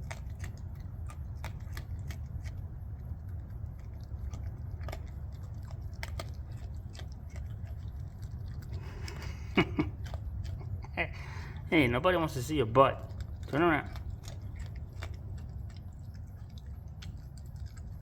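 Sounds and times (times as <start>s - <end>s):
raccoon crunching dry food: 0.0s - 18.0s
steady low hum: 0.0s - 18.0s.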